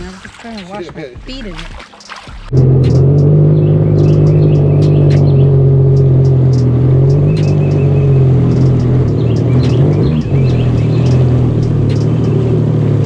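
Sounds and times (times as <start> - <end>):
jet ski engine droning: 2.5 - 13.0
light ticks: 4.0 - 12.4.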